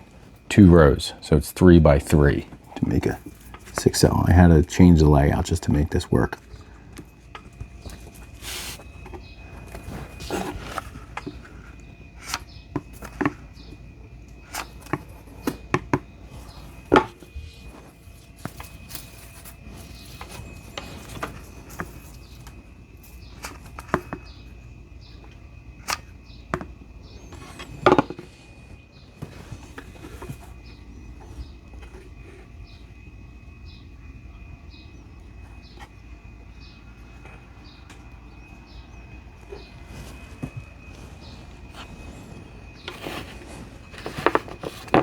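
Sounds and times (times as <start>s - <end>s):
faint high whine: 0.0s - 45.0s
battery cells clicking and knocking: 2.2s - 33.1s, 40.4s - 45.0s.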